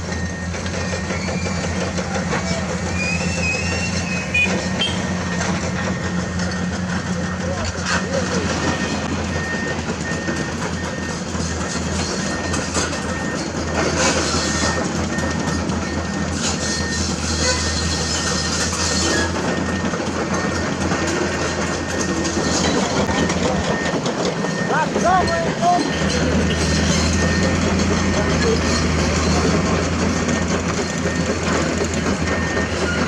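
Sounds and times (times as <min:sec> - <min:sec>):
excavator engine running: 0:00.0 - 0:33.0
rock clanking and scraping: 0:13.8 - 0:33.0.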